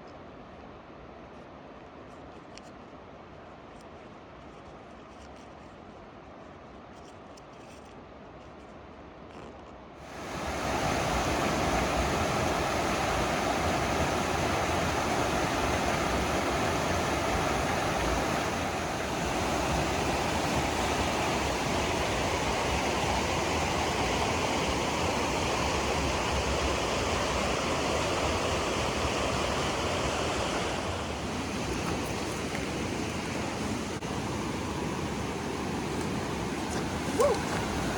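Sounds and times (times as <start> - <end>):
rushing water: 10.0 - 37.9.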